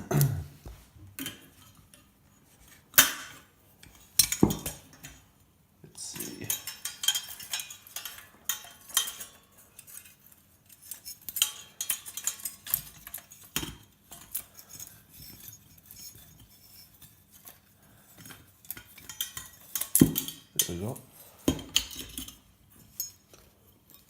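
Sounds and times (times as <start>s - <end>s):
small metal parts clinking: 6.0s - 24.0s.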